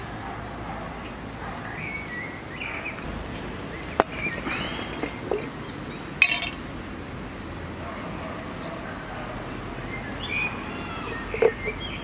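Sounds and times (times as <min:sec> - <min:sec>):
birds chirping: 0:01.3 - 0:06.6, 0:08.5 - 0:12.0
metal jar lid clinking: 0:06.2 - 0:06.6, 0:11.3 - 0:11.7.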